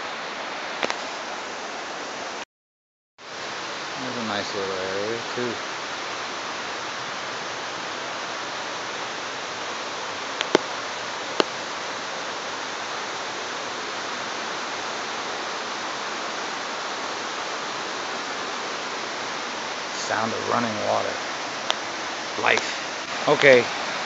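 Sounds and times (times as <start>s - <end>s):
stream water rushing: 0.0s - 2.4s, 3.2s - 24.0s.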